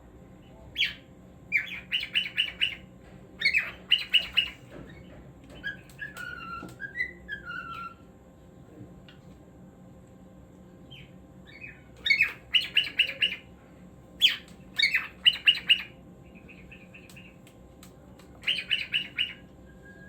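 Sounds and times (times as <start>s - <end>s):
cockatiel chirping: 0.8s - 2.8s, 3.4s - 4.6s, 5.5s - 8.0s, 10.9s - 13.4s, 14.2s - 17.3s, 18.4s - 19.4s.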